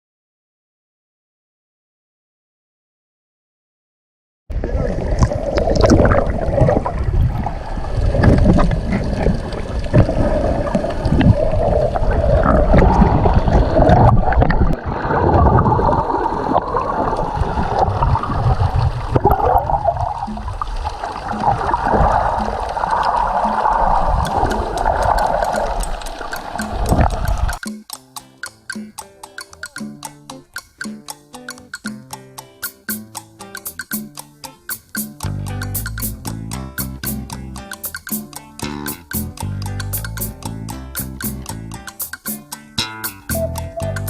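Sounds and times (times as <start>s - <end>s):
water sloshing and gurgling: 4.5s - 27.7s.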